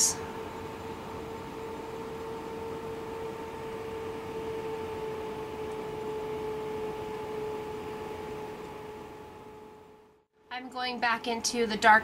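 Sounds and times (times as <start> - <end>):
mid-pitched hum: 0.0 - 12.0.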